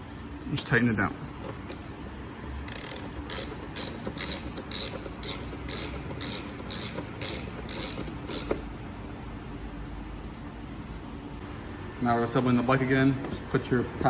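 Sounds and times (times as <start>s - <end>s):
socket ratchet clicking: 2.7s - 8.7s.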